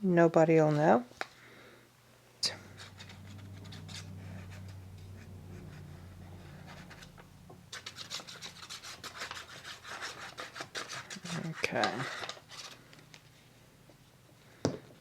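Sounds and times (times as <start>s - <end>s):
low steady hum: 1.3s - 15.0s
hand rubbing paper: 2.5s - 13.1s.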